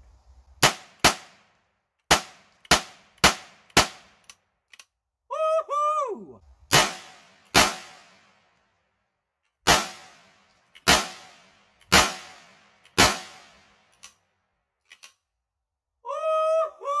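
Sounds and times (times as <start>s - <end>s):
gunshots: 0.6s - 1.4s, 2.1s - 4.1s, 6.7s - 8.4s, 9.7s - 13.8s.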